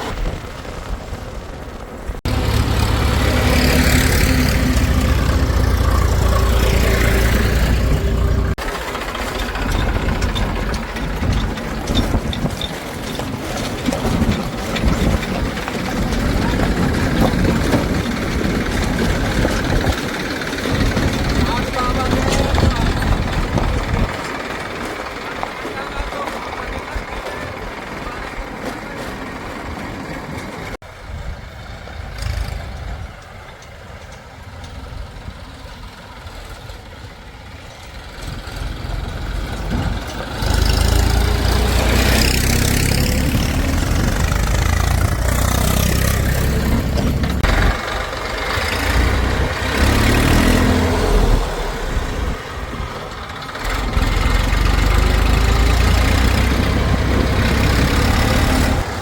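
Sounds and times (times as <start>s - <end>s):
heavy vehicle engine running: 0.0s - 59.0s.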